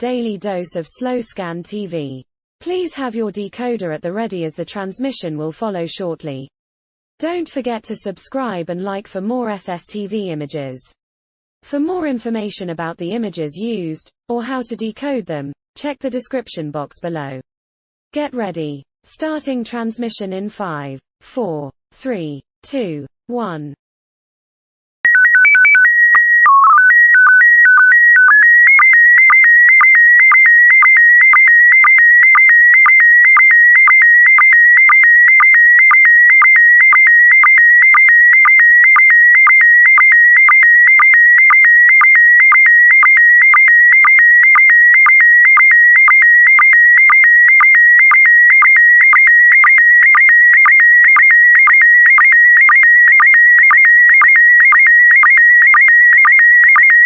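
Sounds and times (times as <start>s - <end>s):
fast-warbling signal tone: 25.1s - 57.0s.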